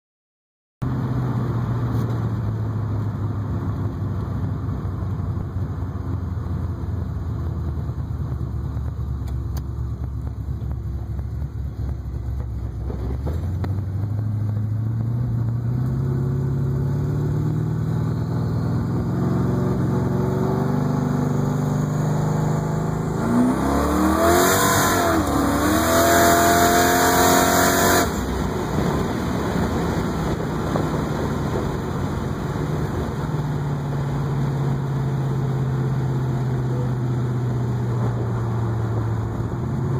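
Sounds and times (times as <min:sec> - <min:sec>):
car engine accelerating: 0:00.8 - 0:39.9.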